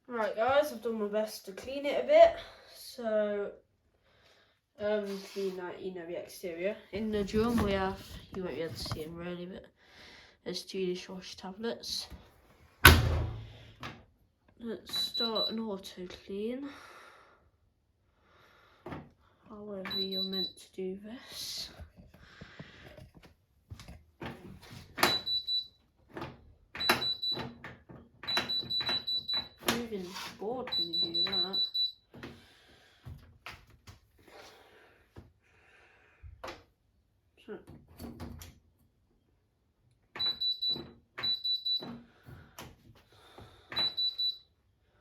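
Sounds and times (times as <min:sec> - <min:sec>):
washing machine beeps: 0:14.9 - 0:15.7, 0:19.9 - 0:20.7, 0:25.0 - 0:25.9, 0:26.7 - 0:27.6, 0:28.2 - 0:29.8, 0:30.6 - 0:32.2, 0:40.2 - 0:42.0, 0:43.7 - 0:44.6.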